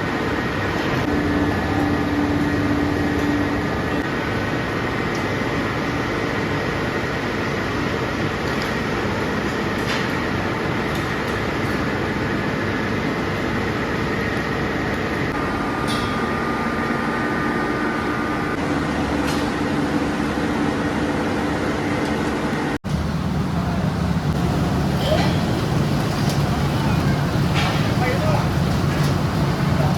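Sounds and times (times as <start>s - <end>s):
industrial machinery din: 0.1s - 6.7s, 13.7s - 29.9s.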